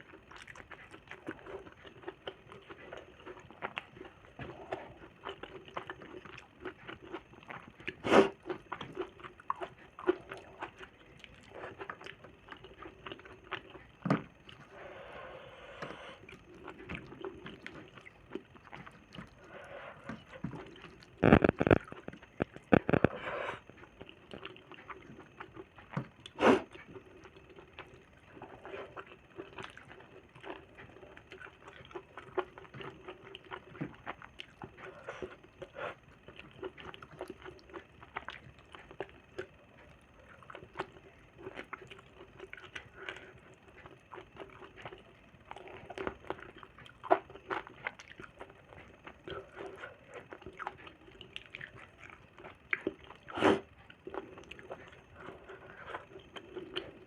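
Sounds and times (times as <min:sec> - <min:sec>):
wet chewing and lip smacking: 0:00.0 - 0:14.7, 0:16.2 - 0:57.0
faint steady hum: 0:00.0 - 0:57.0
mouth clicks: 0:21.2 - 0:23.2.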